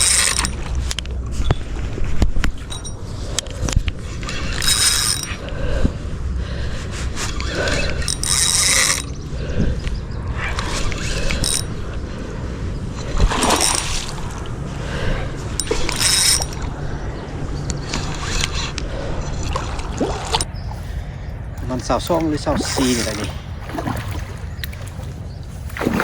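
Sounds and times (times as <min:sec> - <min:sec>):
fishing reel ratcheting clicks: 0:00.0 - 0:01.0, 0:04.1 - 0:05.4, 0:07.3 - 0:09.2, 0:10.5 - 0:11.8, 0:15.6 - 0:16.6
steady low rumble: 0:00.0 - 0:26.0.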